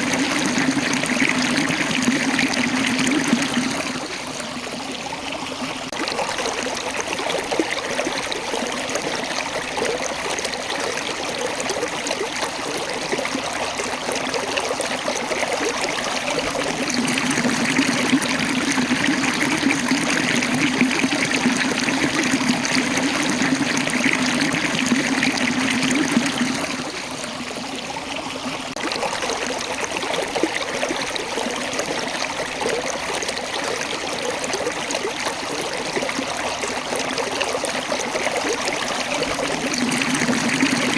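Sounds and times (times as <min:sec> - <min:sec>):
water rushing over rocks: 0:00.0 - 0:04.4, 0:14.7 - 0:27.6, 0:37.6 - 0:40.9.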